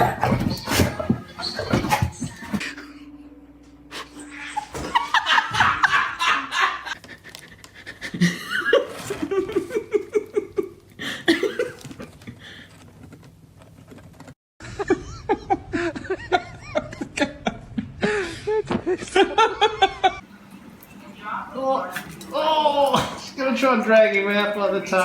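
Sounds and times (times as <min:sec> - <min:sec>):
people laughing: 0:04.1 - 0:11.7, 0:14.6 - 0:20.2.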